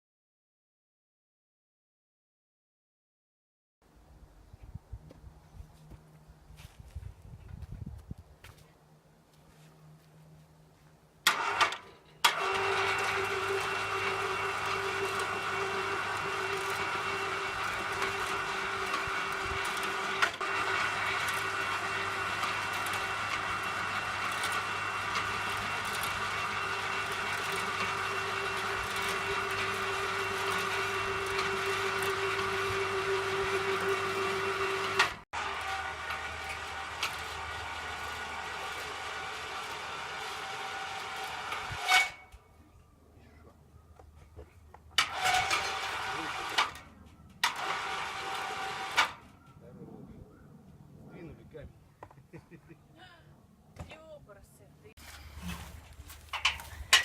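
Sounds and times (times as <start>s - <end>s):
hoist motor humming and whining: 11.3s - 42.4s, 45.0s - 49.4s.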